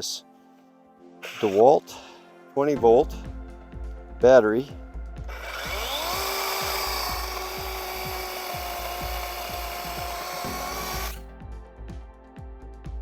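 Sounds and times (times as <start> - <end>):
background music with steady beat: 0.0 - 13.0
electric chainsaw whining: 5.3 - 11.2.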